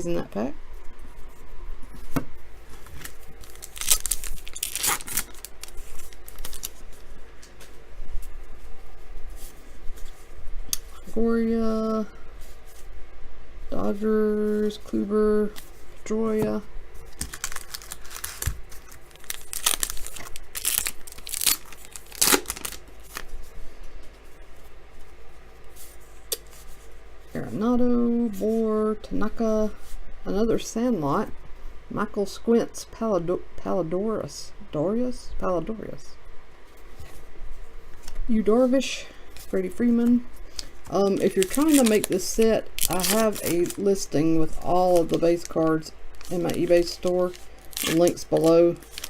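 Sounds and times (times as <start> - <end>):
wrapper crinkling: 2.8 - 7.0, 17.1 - 23.3, 40.5 - 49.0
loud ripping rasps: 3.4 - 6.8, 17.2 - 23.2, 40.5 - 43.9, 44.8 - 49.0
wrapper click: 47.6 - 49.0.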